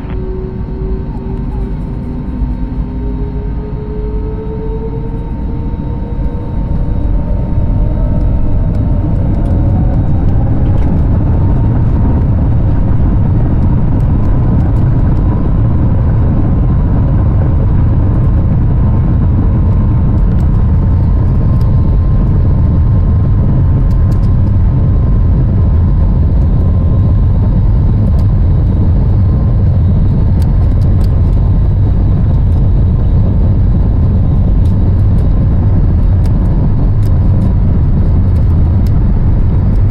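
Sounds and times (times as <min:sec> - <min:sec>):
heavy constant rumble: 0:00.0 - 0:39.9
jet engine whine: 0:00.0 - 0:39.9.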